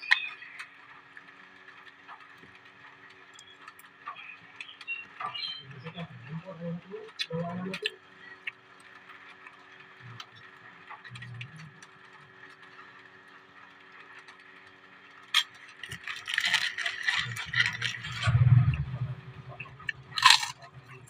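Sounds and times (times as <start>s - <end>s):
loud sharp crackle: 13.9s - 21.0s
crunching and chewing: 15.3s - 18.4s, 19.7s - 20.9s.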